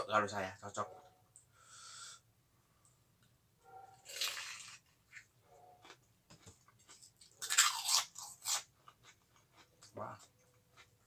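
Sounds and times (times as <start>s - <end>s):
crisp food crunching: 4.0s - 11.0s.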